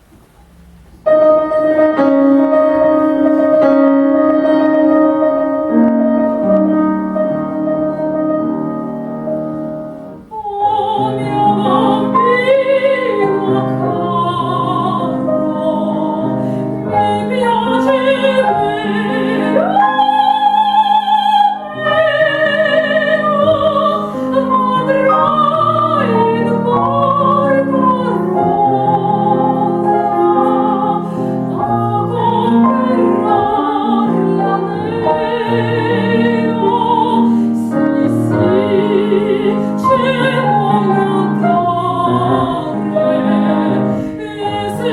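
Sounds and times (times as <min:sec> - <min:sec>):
grand piano: 0:00.0 - 0:44.9
woman singing operatically: 0:10.3 - 0:44.9.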